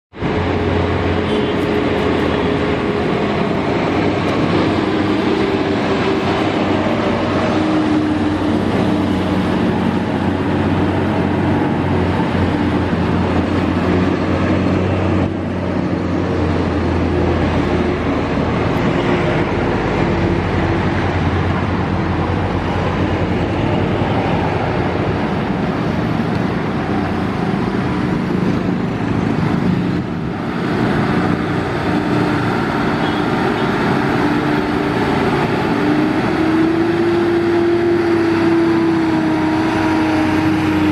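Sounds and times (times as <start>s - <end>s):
truck diesel engines droning: 0.1s - 40.9s.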